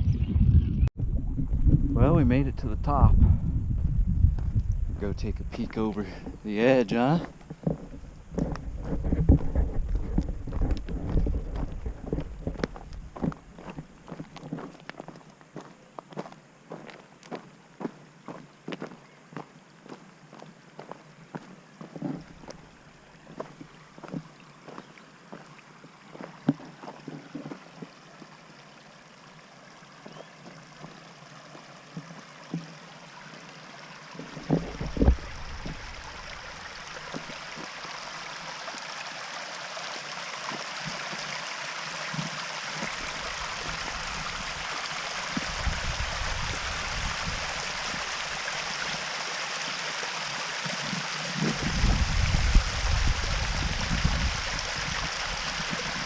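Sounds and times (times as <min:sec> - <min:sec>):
wind buffeting microphone: 0:00.0 - 0:06.5, 0:07.6 - 0:13.4, 0:34.4 - 0:37.4, 0:45.4 - 0:48.2, 0:51.4 - 0:56.0
creek and waterfall rushing: 0:05.6 - 0:07.8, 0:10.5 - 0:56.0.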